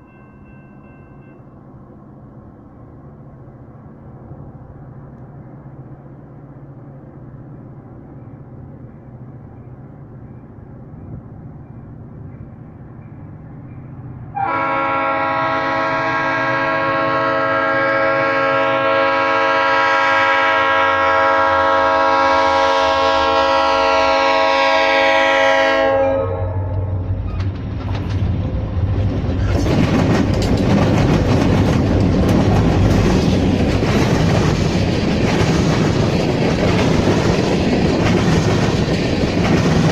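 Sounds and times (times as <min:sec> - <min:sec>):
diesel locomotive engine rumble: 0:00.0 - 0:39.9
train air horn blast: 0:14.3 - 0:27.0
train wheels clattering on rails: 0:26.7 - 0:39.9.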